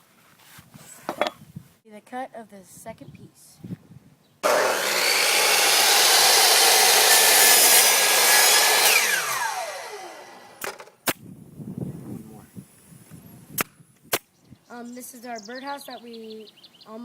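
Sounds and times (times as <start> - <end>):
saw blade spinning down: 4.4 - 10.9
power saw cutting wood: 4.4 - 11.0.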